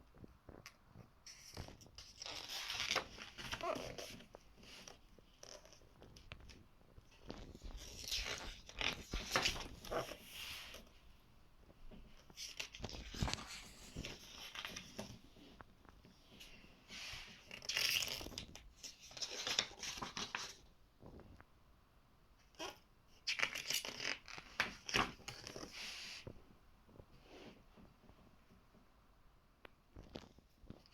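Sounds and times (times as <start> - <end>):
book pages turning: 1.3 - 10.9, 12.0 - 15.7, 16.3 - 20.6, 23.2 - 26.3.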